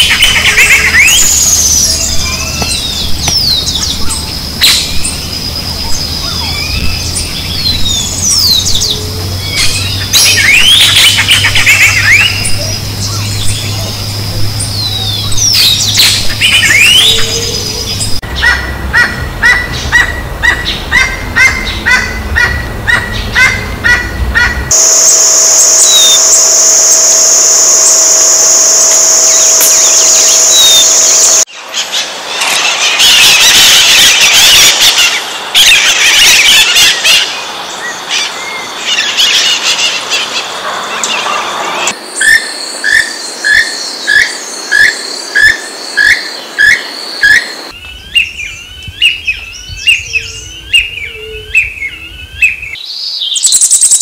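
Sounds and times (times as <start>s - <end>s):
high-pitched drone: 24.4s - 31.5s.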